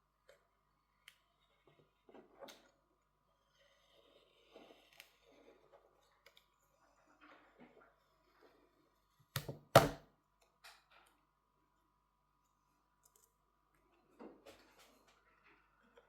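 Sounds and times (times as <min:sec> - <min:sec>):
small tools and phone parts clicking: 0:13.0 - 0:13.4.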